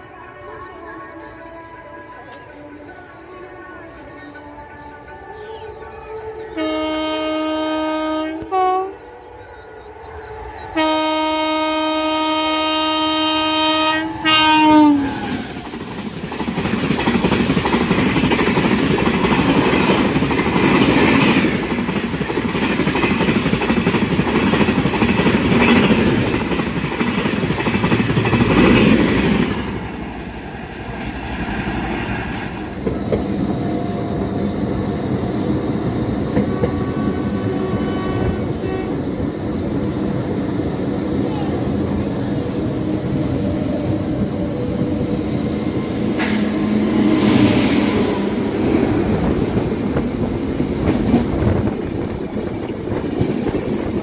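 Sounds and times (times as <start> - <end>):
train passing with wheel clatter: 2.3 - 54.0
train horn blasts: 5.4 - 9.9, 10.7 - 15.6, 36.4 - 39.2.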